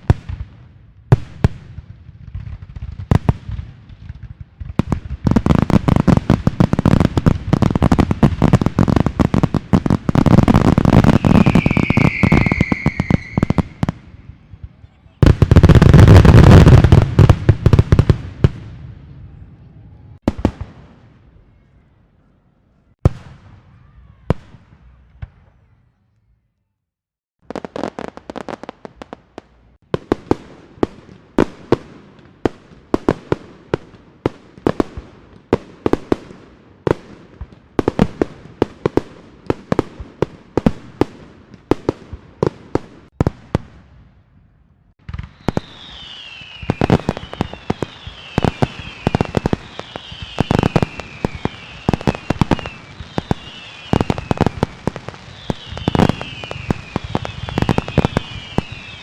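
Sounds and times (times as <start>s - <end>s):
firecrackers banging: 1.2s - 18.7s, 45.0s - 59.0s
fireworks hiss: 5.7s - 14.3s, 45.1s - 59.0s
fireworks whistles falling in pitch: 10.2s - 14.1s, 45.1s - 59.0s.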